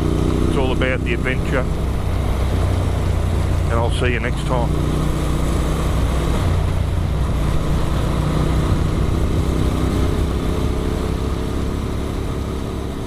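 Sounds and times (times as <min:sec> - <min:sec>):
motorcycle engine running: 0:00.0 - 0:13.0
wind noise: 0:05.1 - 0:11.0.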